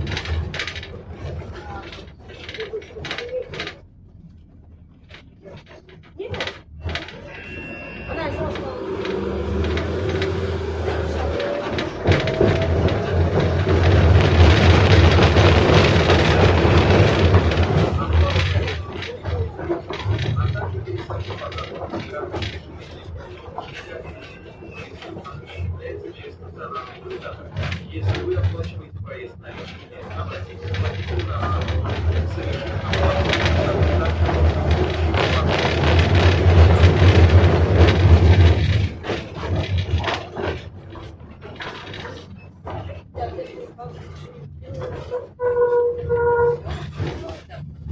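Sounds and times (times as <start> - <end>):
low motor hum: 0.0 - 18.4
clicks and knocks from track: 0.0 - 47.9
tram body rattle: 0.0 - 47.9
tram wheels on rail: 0.0 - 47.9.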